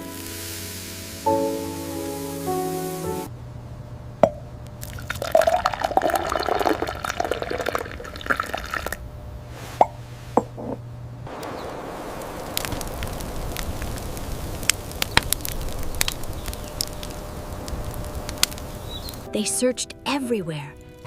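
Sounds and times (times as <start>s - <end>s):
steady hiss: 0.0s - 3.4s, 11.2s - 19.4s
bubbling pops: 4.2s - 9.0s
liquid dripping: 4.8s - 9.0s.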